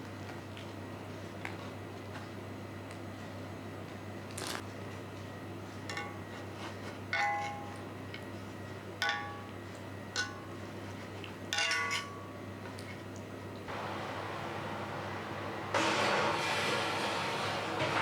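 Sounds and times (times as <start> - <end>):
steady low hum: 13.3 - 18.0.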